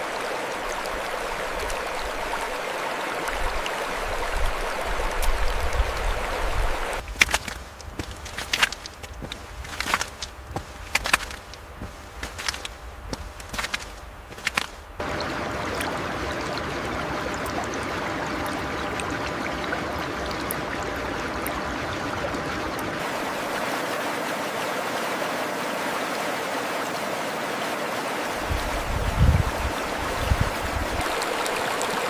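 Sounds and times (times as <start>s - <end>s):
stream flowing: 0.0s - 32.0s.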